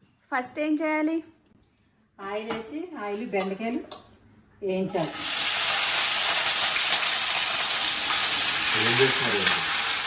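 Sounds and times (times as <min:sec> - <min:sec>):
okra sizzling in hot oil: 0:05.0 - 0:10.0.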